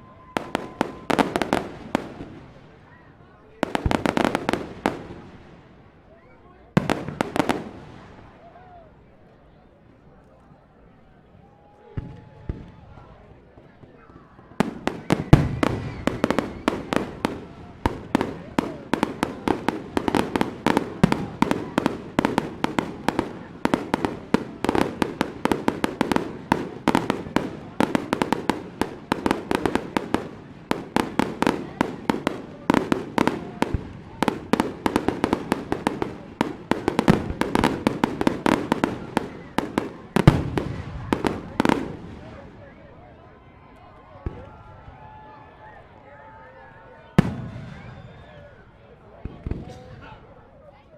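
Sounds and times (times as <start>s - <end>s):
fireworks cracking and popping: 3.6s - 5.6s, 14.5s - 42.6s.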